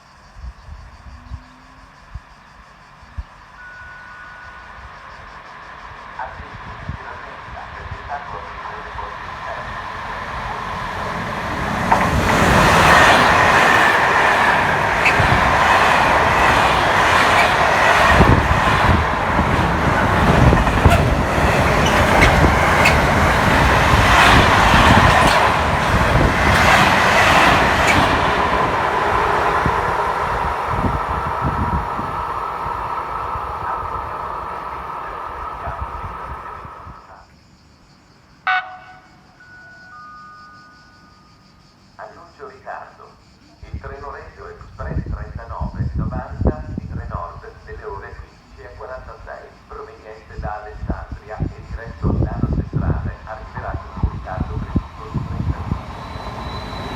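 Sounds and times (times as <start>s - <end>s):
train rumbling past: 0.5s - 37.2s, 41.7s - 56.9s
wheels clattering over rail joints: 6.7s - 37.0s.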